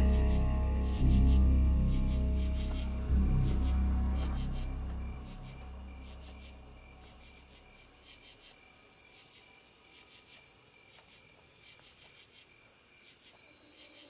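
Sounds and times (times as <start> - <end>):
high thin insect trill: 0.0 - 8.6
crickets chirping: 0.0 - 14.0.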